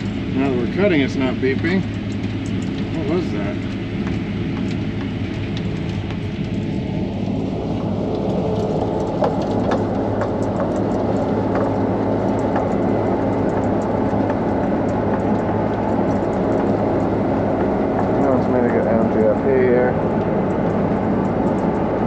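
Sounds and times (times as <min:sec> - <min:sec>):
combine harvester engine hum: 0:00.0 - 0:22.0
machinery rush: 0:00.0 - 0:22.0
sharp ticks: 0:03.7 - 0:21.9.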